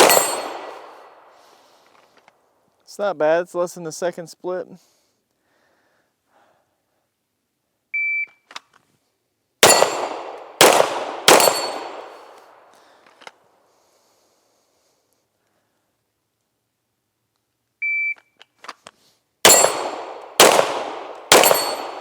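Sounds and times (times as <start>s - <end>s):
pistol shots ringing: 0.0s - 1.3s, 9.6s - 12.7s, 19.4s - 22.0s.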